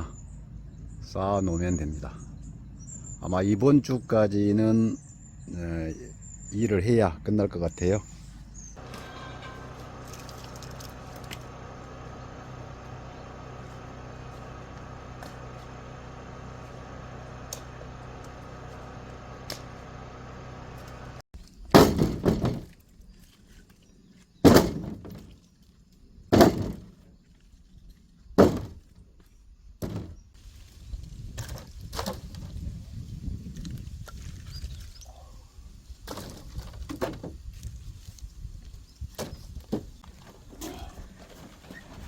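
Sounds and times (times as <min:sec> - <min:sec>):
steady low hum: 0:08.1 - 0:21.2
axe splitting firewood: 0:08.8 - 0:19.8, 0:21.7 - 0:22.8, 0:24.4 - 0:25.3, 0:26.3 - 0:26.9, 0:28.4 - 0:28.9.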